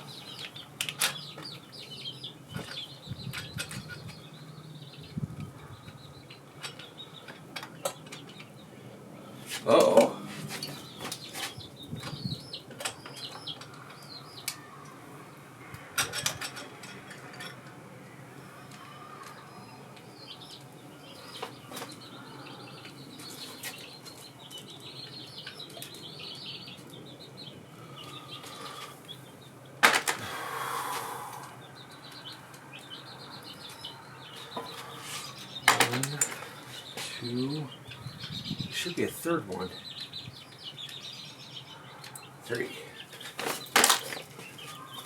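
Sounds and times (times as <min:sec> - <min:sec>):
faint birds chirping: 0:00.0 - 0:45.0.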